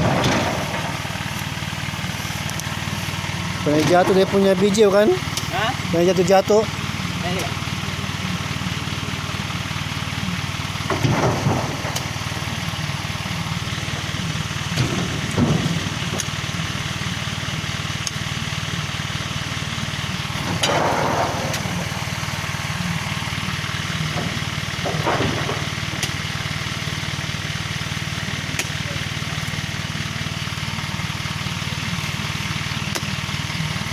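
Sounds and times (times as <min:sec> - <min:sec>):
loud thumps: 0:00.0 - 0:01.2, 0:10.8 - 0:12.2, 0:20.4 - 0:23.2
truck engine idling: 0:00.0 - 0:33.9.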